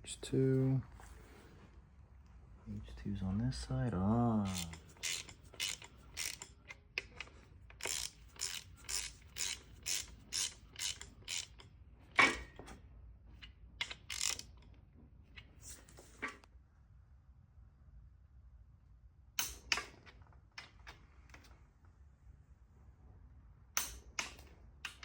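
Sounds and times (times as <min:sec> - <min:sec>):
socket ratchet clicking: 0:04.5 - 0:11.7, 0:13.8 - 0:14.6.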